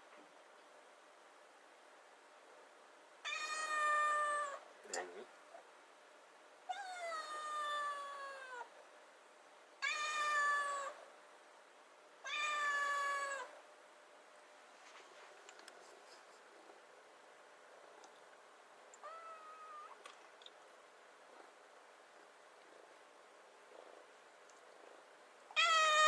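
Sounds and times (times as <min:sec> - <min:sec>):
kitten meowing: 0:19.0 - 0:20.0.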